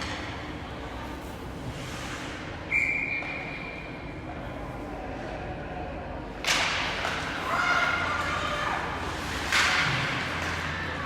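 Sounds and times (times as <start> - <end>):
arena background hum: 0.0 - 11.0
whistle blast echoing: 2.7 - 3.6.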